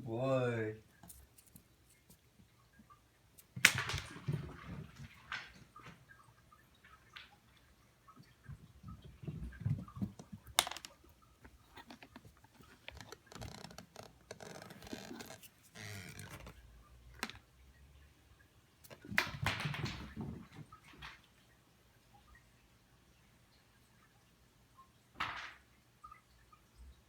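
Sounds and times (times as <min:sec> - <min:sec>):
cat scrambling on hard floor: 0:08.6 - 0:16.6
rustling: 0:09.0 - 0:17.3.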